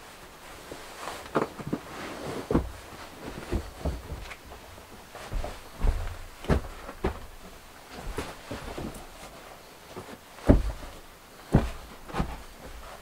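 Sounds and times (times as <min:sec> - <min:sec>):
irregular knocks and thuds: 0:02.5 - 0:09.4, 0:10.0 - 0:13.0.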